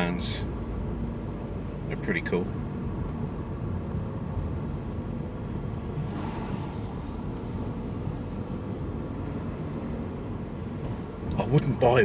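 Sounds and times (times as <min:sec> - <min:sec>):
street traffic noise: 0:00.0 - 0:12.0
wind rumble on microphone: 0:05.6 - 0:09.8.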